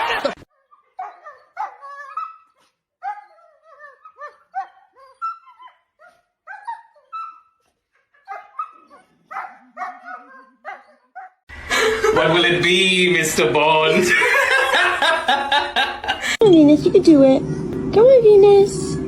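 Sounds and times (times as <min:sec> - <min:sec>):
dog whining and yelping: 0:00.6 - 0:11.4.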